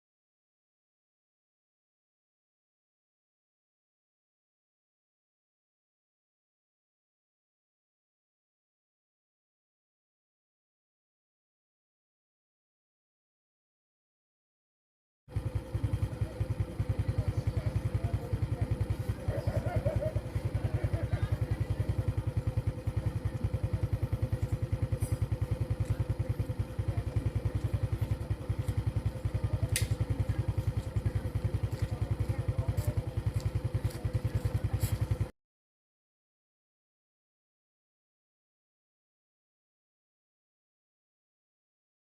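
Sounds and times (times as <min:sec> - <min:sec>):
engine running: 0:15.3 - 0:35.3.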